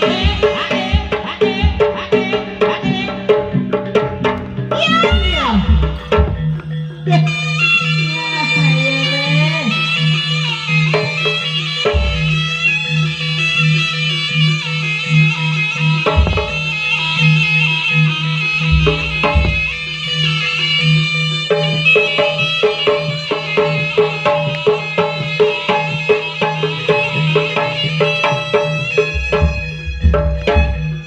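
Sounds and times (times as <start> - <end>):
hand drumming: 0.0 - 6.9, 10.9 - 12.5, 16.1 - 16.8, 18.7 - 19.8, 21.5 - 31.0
gong-chime percussion: 0.0 - 31.0
shrill reed melody: 0.0 - 31.0.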